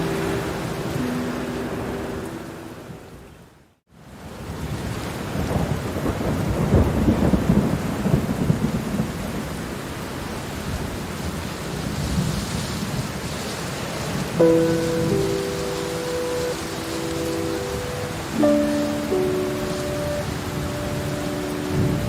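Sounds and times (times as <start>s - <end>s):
steady rain: 0.0s - 22.0s
thunder rumbling: 14.4s - 22.0s.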